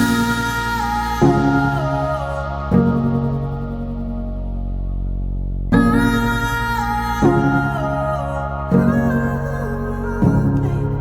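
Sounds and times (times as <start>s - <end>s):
soft slow instrumental music: 0.0s - 11.0s.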